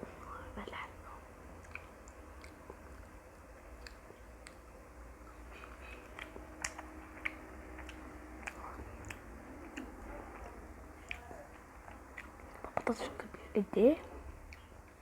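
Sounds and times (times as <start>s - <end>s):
person chewing crunchy food: 1.6s - 13.0s.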